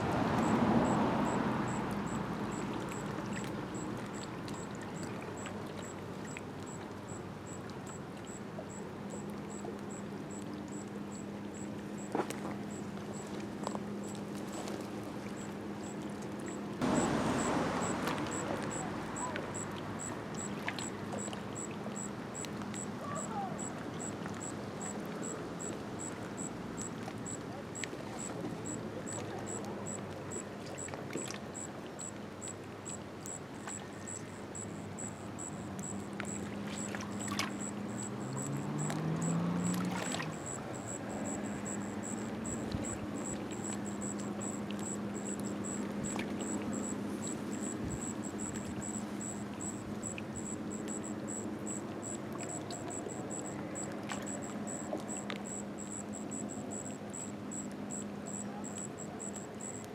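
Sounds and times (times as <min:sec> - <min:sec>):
insect chirping: 0:00.4 - 0:04.7, 0:16.8 - 0:30.4, 0:33.2 - 0:39.7, 0:40.3 - 0:59.8
water lapping against rocks: 0:36.0 - 0:50.0.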